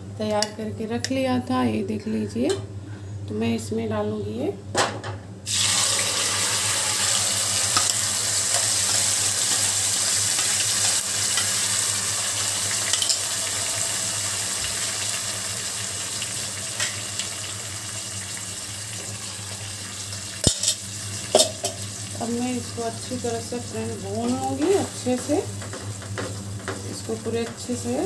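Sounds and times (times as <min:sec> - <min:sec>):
paste sizzling in hot oil: 0:05.5 - 0:22.2.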